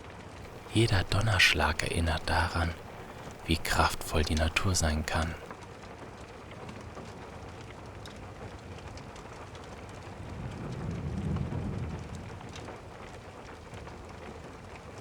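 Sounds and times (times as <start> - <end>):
steady rain: 0.5 - 5.5.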